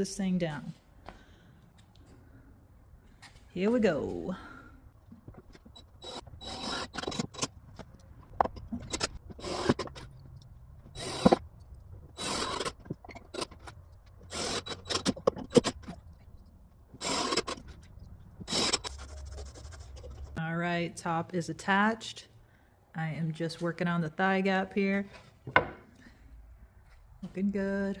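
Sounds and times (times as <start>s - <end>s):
screws being driven: 5.5s - 8.0s, 8.7s - 10.2s, 10.9s - 16.0s, 16.9s - 17.8s, 18.4s - 20.4s.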